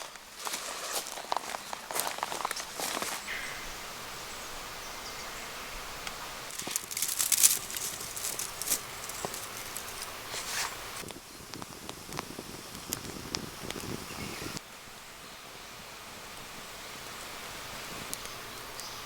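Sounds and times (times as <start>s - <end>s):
rustling: 0.0s - 3.3s, 6.5s - 11.0s
faint steady hiss: 0.0s - 19.0s
light clicks and crackles: 6.0s - 10.1s.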